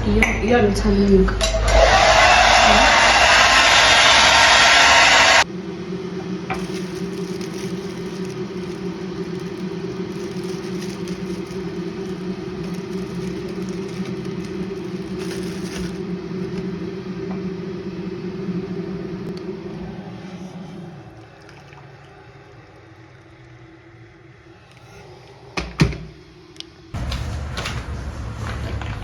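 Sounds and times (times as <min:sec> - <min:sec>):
hair dryer blowing: 0:01.6 - 0:05.4
low motor hum: 0:05.1 - 0:25.5.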